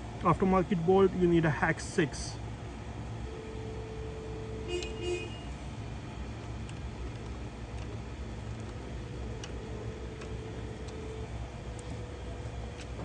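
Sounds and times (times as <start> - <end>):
street traffic rumble: 0.0 - 13.0
car horn toot: 4.6 - 5.6.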